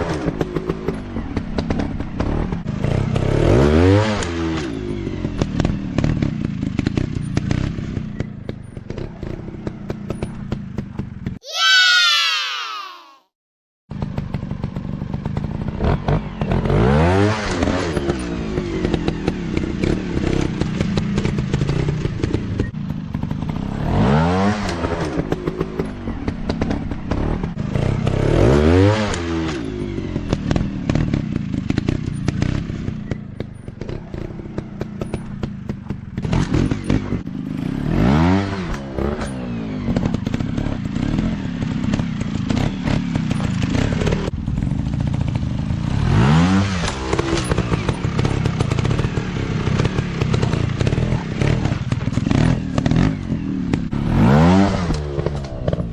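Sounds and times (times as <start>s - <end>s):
dirt bike engines revving: 14.0s - 55.9s.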